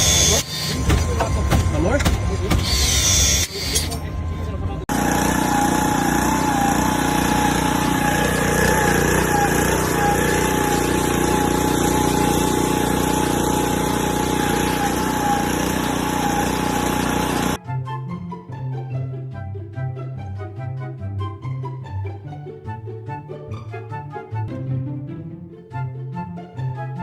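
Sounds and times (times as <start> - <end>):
motor running with whine: 0.0 - 17.6.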